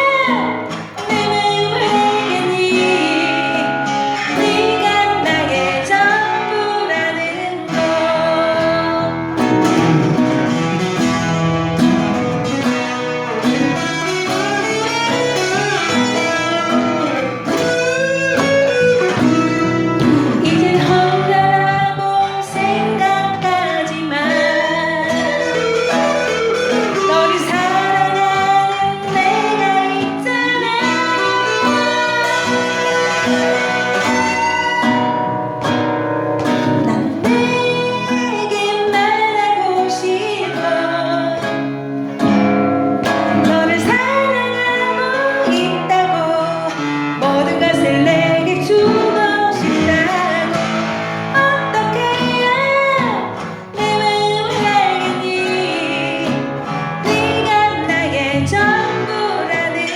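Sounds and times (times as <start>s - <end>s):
woman singing pop ballad: 0.0s - 10.9s, 12.4s - 59.9s
strummed and plucked guitar: 0.0s - 59.9s.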